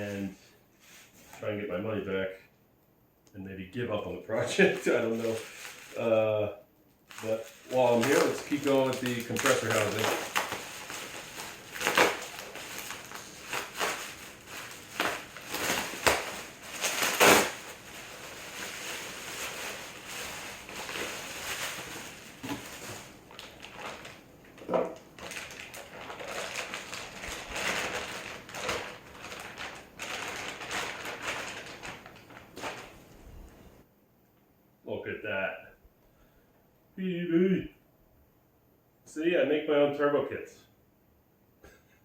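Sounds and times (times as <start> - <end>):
packaging rustling and crinkling: 4.4 - 6.2, 7.0 - 33.6
packaging being torn: 4.5 - 6.1, 7.1 - 32.9.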